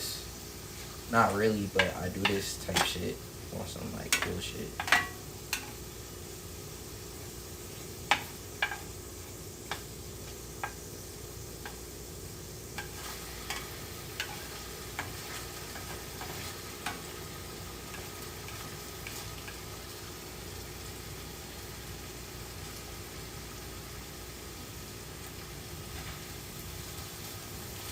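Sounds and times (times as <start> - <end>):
food sizzling in a pan: 0.0 - 27.9
utensil clicking against pan: 4.1 - 5.8.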